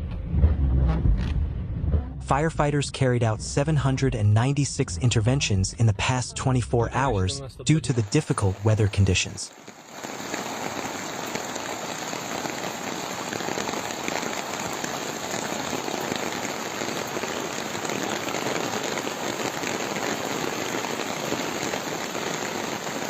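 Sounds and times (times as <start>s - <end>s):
heavy rain on hard surfaces: 7.9s - 23.0s.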